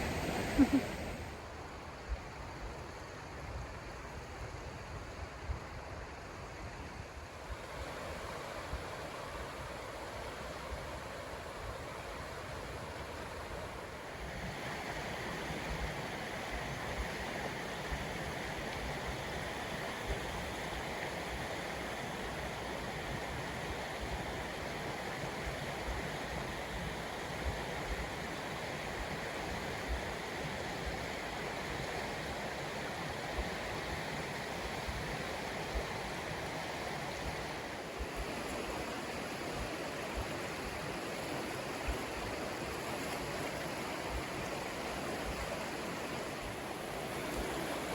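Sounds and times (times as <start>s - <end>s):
river water rushing: 0.0s - 1.5s, 34.2s - 47.9s.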